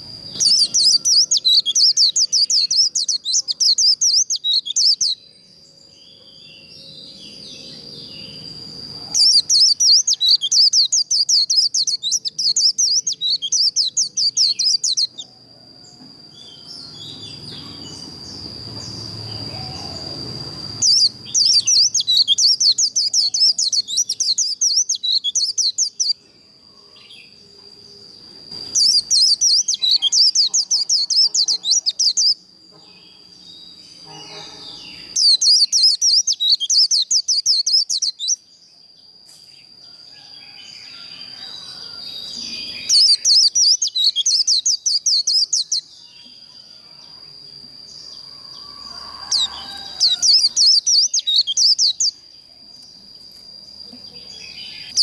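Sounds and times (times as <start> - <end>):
thin steady high tone: 0.0 - 55.0
bird chattering warble: 9.0 - 15.2, 28.6 - 32.4.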